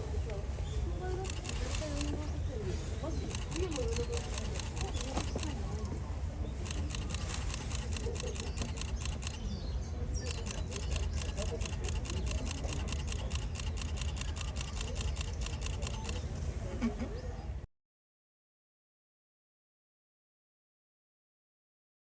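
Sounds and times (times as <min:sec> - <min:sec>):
murmur of voices: 0:00.0 - 0:17.7
camera shutters clicking: 0:01.2 - 0:02.2, 0:03.3 - 0:05.9, 0:06.6 - 0:09.4, 0:10.3 - 0:16.2.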